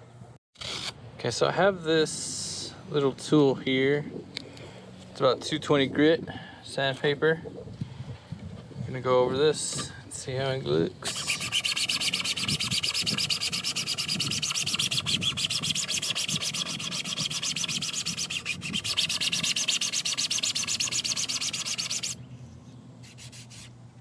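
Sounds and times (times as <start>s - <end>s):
sandpaper rubbing plastic: 11.0s - 22.2s, 23.0s - 23.7s.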